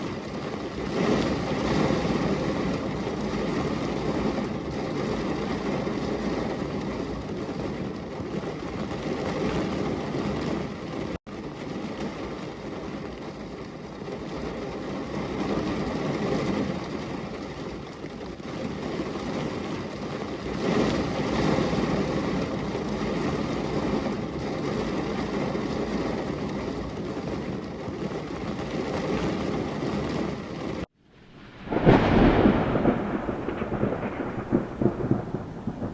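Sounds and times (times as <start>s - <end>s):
steady rainfall: 0.0s - 35.9s.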